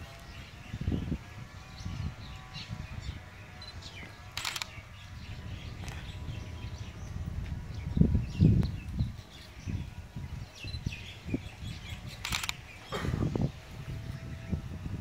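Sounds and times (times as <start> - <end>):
birds chirping: 0.0 - 14.8.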